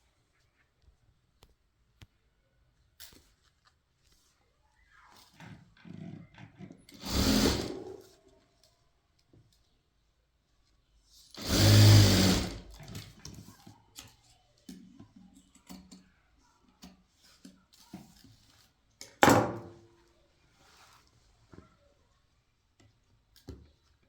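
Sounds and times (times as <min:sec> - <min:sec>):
electric sewing machine running: 0:07.0 - 0:08.0, 0:11.4 - 0:12.8.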